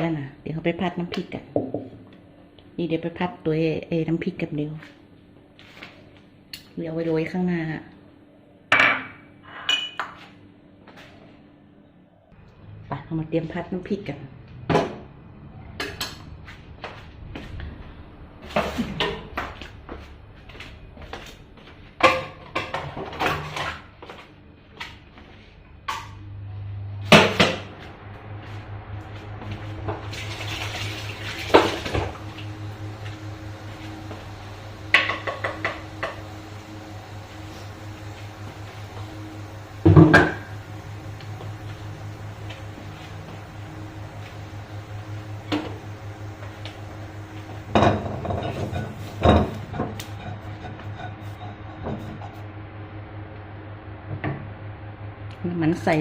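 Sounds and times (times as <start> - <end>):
steady low hum: 0.0 - 56.0
cookware and cupboards clattering: 22.0 - 23.9, 47.7 - 52.2.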